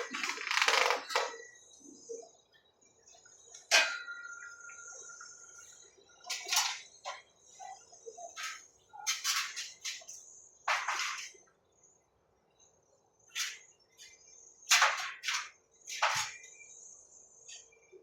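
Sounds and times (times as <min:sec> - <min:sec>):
ringing metallic clank: 0:03.7 - 0:06.9.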